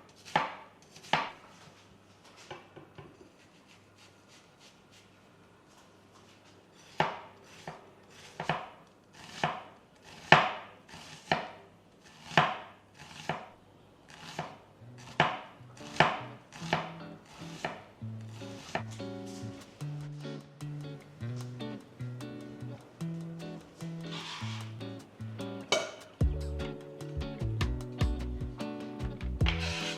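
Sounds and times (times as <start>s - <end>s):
knife chopping on cutting board: 6.9s - 11.6s, 12.2s - 13.5s, 14.2s - 17.0s, 17.6s - 17.8s
soft guitar music: 15.6s - 29.9s.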